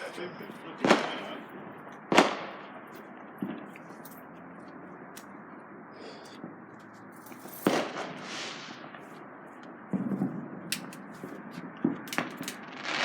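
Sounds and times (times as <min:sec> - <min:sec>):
firework bang: 0:00.8 - 0:02.8, 0:07.6 - 0:09.0, 0:09.9 - 0:13.0
firework hiss: 0:07.6 - 0:09.0, 0:12.6 - 0:13.0.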